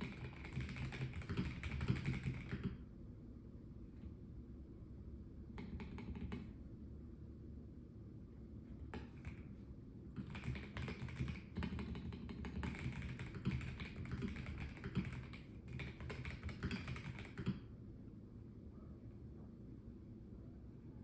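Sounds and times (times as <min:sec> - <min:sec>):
mechanical keyboard typing: 0:00.0 - 0:02.8, 0:05.6 - 0:06.5, 0:09.0 - 0:09.4, 0:10.2 - 0:17.6.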